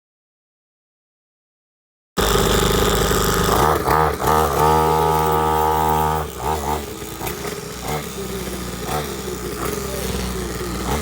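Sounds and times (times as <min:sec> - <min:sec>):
two-stroke engine revving: 0:02.2 - 0:11.0.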